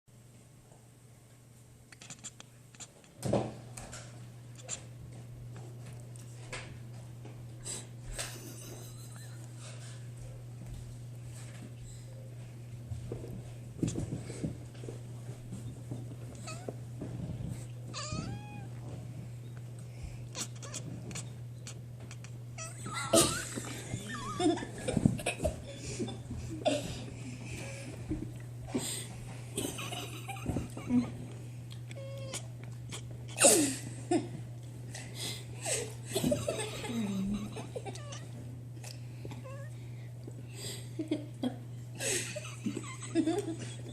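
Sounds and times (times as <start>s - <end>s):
steady low hum: 0.2s - 43.9s
person laughing softly: 8.2s - 10.0s, 22.6s - 28.0s, 29.6s - 31.4s, 32.9s - 38.2s, 40.6s - 43.9s
cat meowing: 16.4s - 16.7s, 17.9s - 18.8s, 20.3s - 23.0s, 31.9s - 33.4s.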